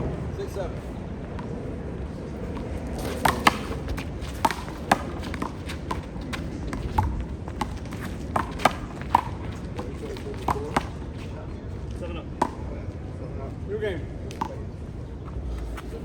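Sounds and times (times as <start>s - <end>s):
handball smacking and bouncing: 2.6s - 9.4s.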